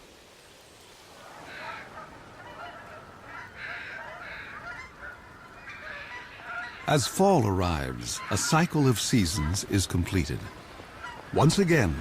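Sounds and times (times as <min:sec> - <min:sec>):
geese honking: 0:01.4 - 0:07.2, 0:08.0 - 0:09.7, 0:10.5 - 0:12.0.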